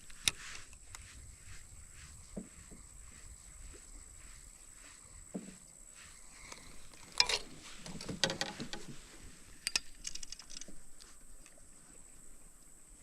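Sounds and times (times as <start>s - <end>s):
fishing gear knocking and clattering: 6.9s - 9.0s, 9.6s - 10.8s.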